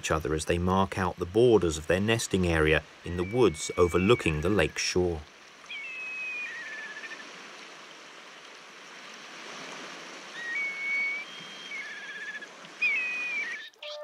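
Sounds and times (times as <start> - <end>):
whistled bird calls: 3.1 - 5.0, 5.7 - 7.2, 10.3 - 14.0.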